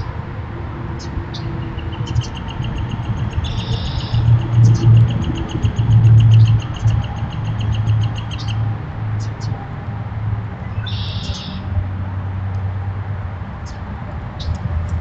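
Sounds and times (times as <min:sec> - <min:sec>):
birds chirping: 0:01.0 - 0:09.6, 0:10.6 - 0:11.7.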